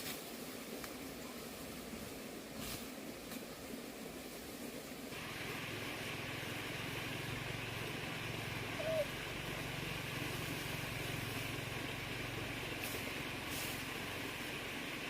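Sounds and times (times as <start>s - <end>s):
motor humming: 5.2s - 15.0s.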